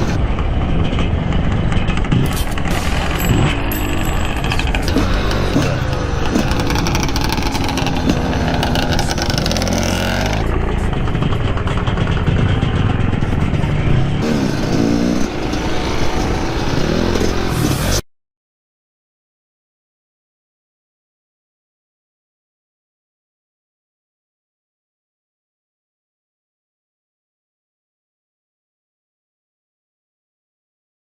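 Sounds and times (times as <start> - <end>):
dirt bike engine revving: 0.9 - 18.0.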